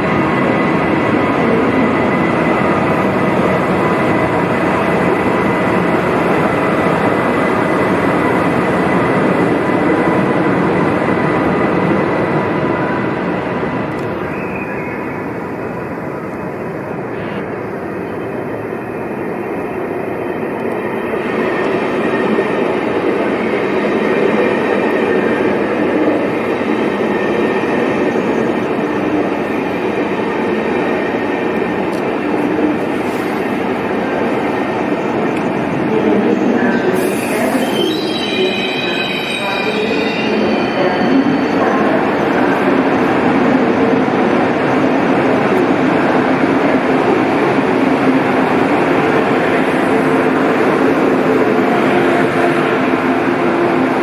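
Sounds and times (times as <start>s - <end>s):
train rumbling past: 0.0s - 54.0s
high wheel squeal: 36.9s - 42.0s.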